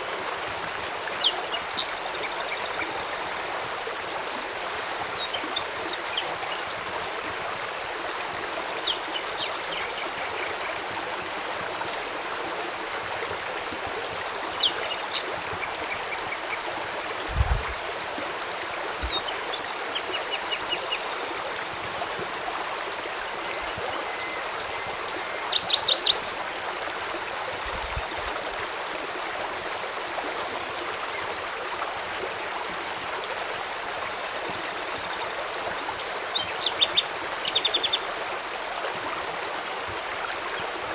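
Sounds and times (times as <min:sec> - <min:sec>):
river water flowing: 0:00.0 - 0:40.9
small birds chirping: 0:01.2 - 0:03.5, 0:05.1 - 0:06.9, 0:08.4 - 0:10.8, 0:14.5 - 0:16.6, 0:19.0 - 0:21.2, 0:34.2 - 0:38.2.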